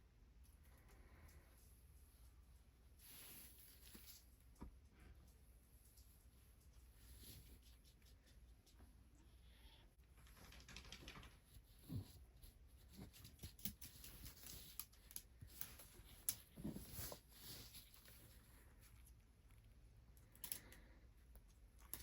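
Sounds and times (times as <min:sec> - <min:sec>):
small clicks and ticks: 0:10.0 - 0:12.0, 0:18.9 - 0:22.0.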